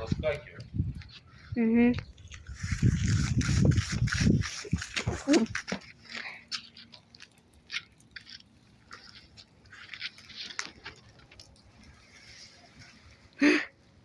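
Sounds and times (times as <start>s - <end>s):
fire crackling: 0.0s - 14.0s.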